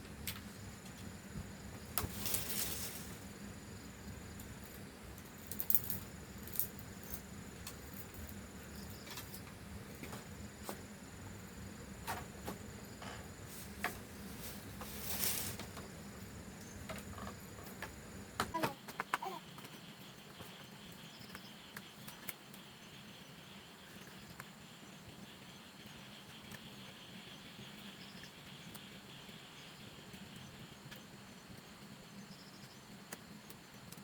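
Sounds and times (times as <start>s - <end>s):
brief rustles: 13.6s - 15.8s.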